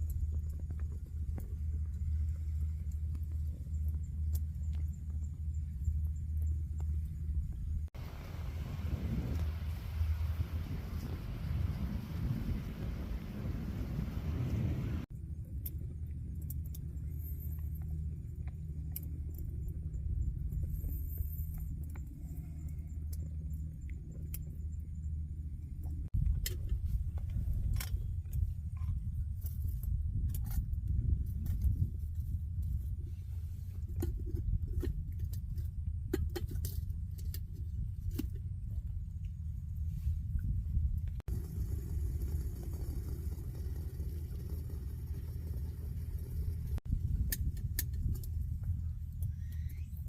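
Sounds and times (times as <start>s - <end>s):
low steady rumble: 0.0s - 50.0s
campfire crackling and popping: 41.3s - 48.4s.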